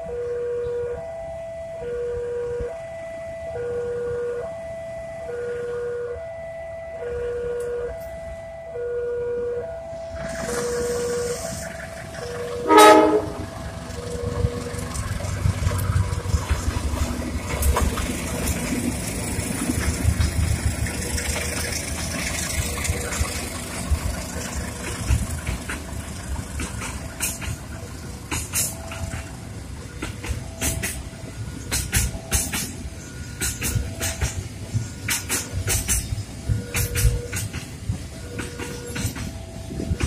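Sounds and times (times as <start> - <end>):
train wheels rumbling on rail: 9.9 - 40.0
wheels clicking over rail joints: 10.2 - 40.0.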